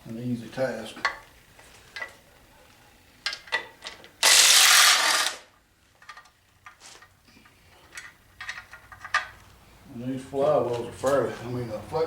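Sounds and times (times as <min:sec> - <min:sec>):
power wrench running: 0:04.2 - 0:05.5.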